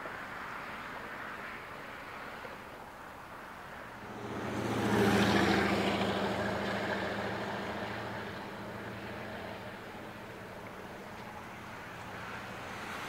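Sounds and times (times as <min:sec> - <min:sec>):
car engine driving past: 0:03.9 - 0:13.0.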